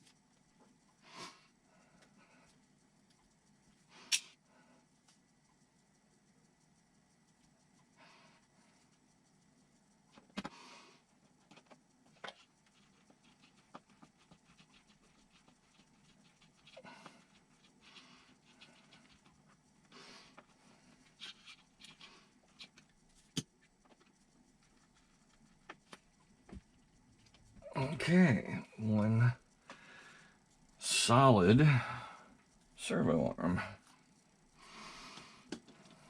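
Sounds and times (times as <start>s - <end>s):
clicks of small parts handled: 4.1s - 4.4s.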